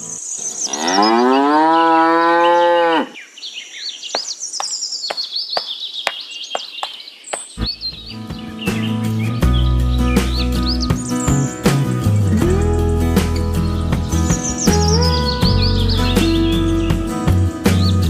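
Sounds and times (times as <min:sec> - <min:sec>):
birds chirping: 0:00.0 - 0:18.0
cow mooing: 0:00.7 - 0:03.2.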